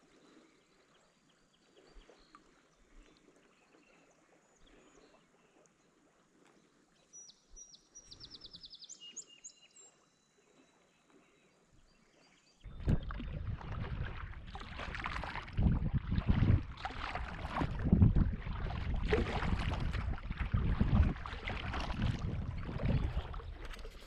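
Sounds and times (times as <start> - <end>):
paddle strokes splashing water: 12.7 - 24.0
wind rumble on microphone: 12.7 - 24.0.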